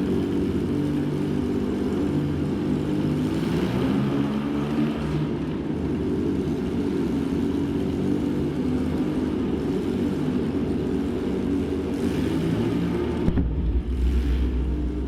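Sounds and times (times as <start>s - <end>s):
low droning rumble: 12.6s - 15.0s
held low tones shifting pitch: 13.0s - 15.0s.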